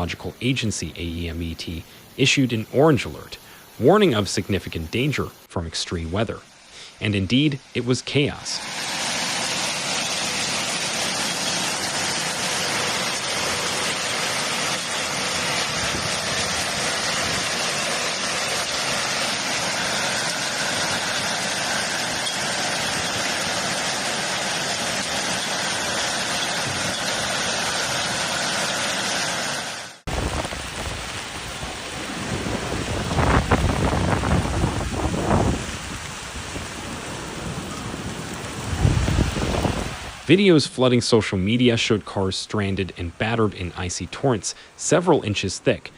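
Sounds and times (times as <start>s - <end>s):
hail and rain pelting down: 8.7s - 40.3s.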